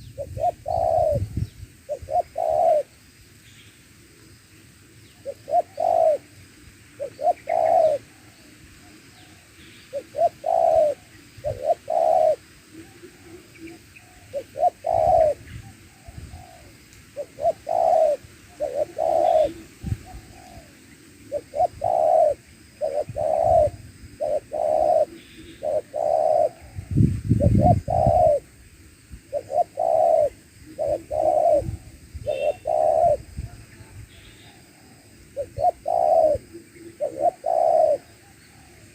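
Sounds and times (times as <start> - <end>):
doves cooing: 0.0 - 3.0, 5.2 - 28.6, 29.2 - 38.9.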